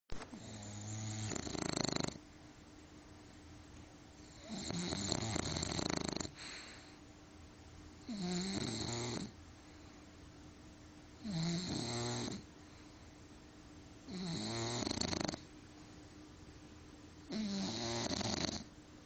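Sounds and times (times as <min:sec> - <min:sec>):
dog snoring: 0:00.3 - 0:02.2, 0:04.2 - 0:06.9, 0:08.0 - 0:09.4, 0:11.2 - 0:12.5, 0:14.1 - 0:15.5, 0:17.3 - 0:18.7
dog breathing quietly: 0:04.4 - 0:07.1.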